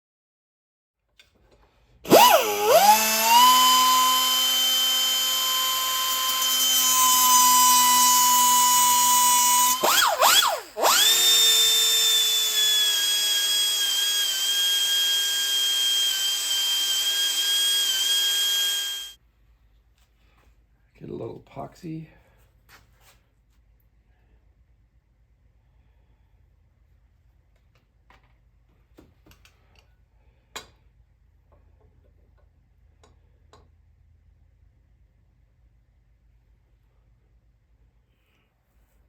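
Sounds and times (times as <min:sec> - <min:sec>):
power tool motor whining: 0:02.1 - 0:19.2.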